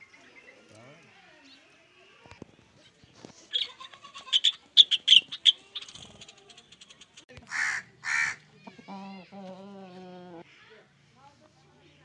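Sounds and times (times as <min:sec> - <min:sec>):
birds calling sharp notes: 0:04.3 - 0:09.2.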